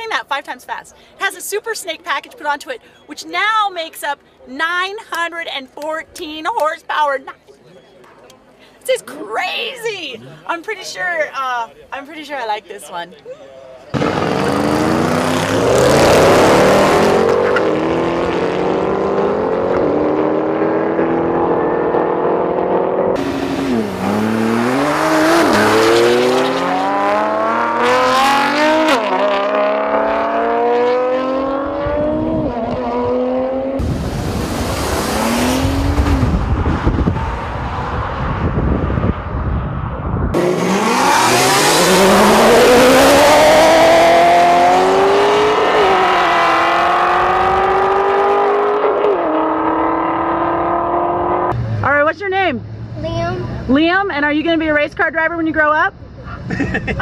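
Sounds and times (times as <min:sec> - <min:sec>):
car engines accelerating hard: 0:13.9 - 0:52.0
deep rumble: 0:33.8 - 0:40.4.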